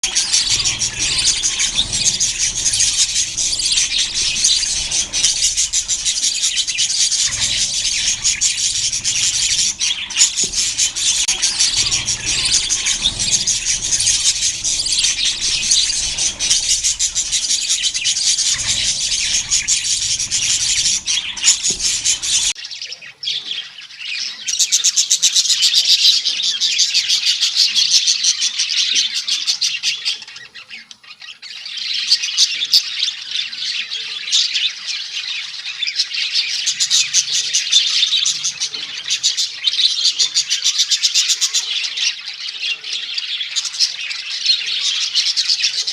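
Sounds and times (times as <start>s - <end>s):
budgerigars chattering and chirping: 0.0s - 45.9s
low background rumble: 0.1s - 22.6s.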